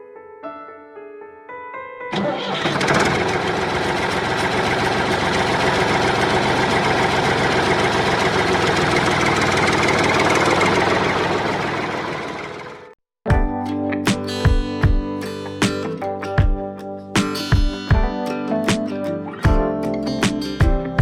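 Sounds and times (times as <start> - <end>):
small motor rattling steadily: 3.0 - 12.6.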